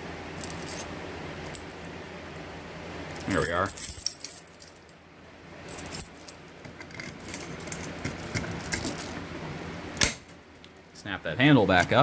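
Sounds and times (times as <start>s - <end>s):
keys jangling: 0.4s - 0.9s, 3.1s - 4.9s, 5.7s - 9.2s.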